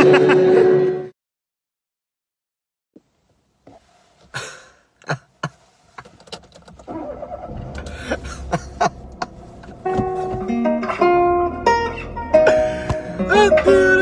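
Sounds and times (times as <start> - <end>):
car engine starting and running: 3.2 - 14.0
clicks and knocks inside car: 5.4 - 6.9, 9.1 - 10.6.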